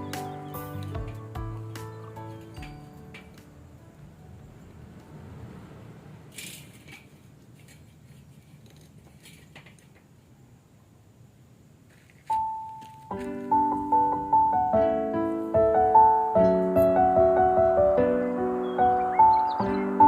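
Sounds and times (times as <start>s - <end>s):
background music: 0.0s - 5.0s, 12.4s - 20.0s
light clicks and rustles: 6.3s - 10.2s.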